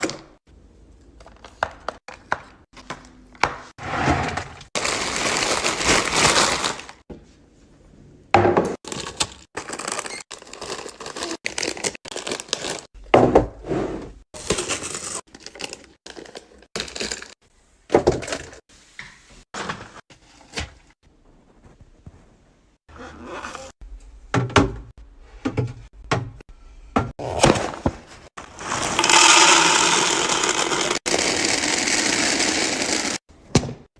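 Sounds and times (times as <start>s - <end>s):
packaging crinkling and rustling: 4.8s - 7.0s, 8.9s - 12.9s
items knocking against shelves: 24.3s - 28.3s.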